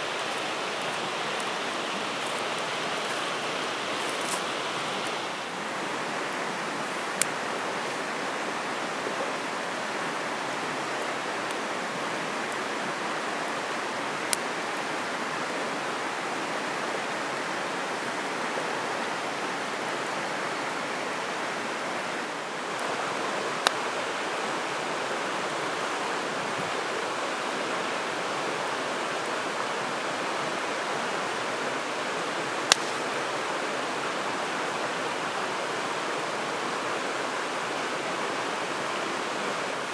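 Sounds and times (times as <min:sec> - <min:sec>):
river flowing: 0:00.0 - 0:39.9
sharp snaps: 0:32.7 - 0:33.2.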